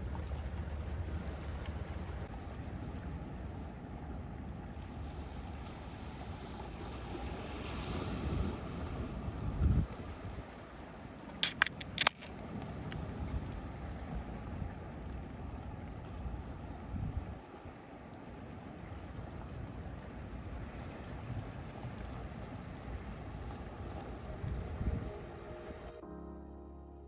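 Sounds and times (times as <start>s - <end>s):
wind: 0.0s - 26.3s
sharp clicks: 11.4s - 12.4s.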